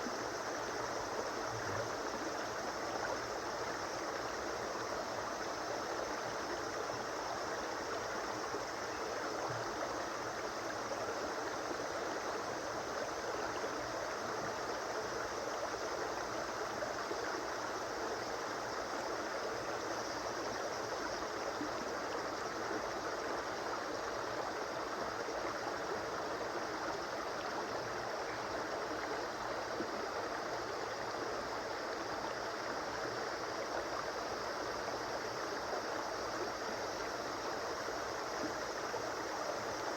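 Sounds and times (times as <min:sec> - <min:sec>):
stream flowing over rocks: 0:00.1 - 0:39.9.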